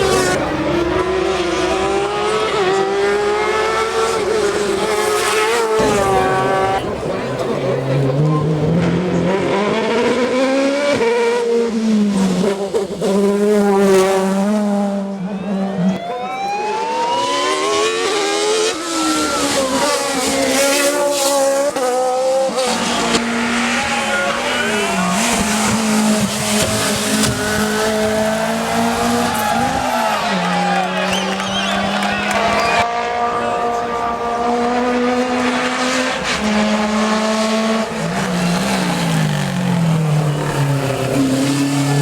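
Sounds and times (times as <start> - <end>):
racing car engines at high revs: 0.0 - 42.0.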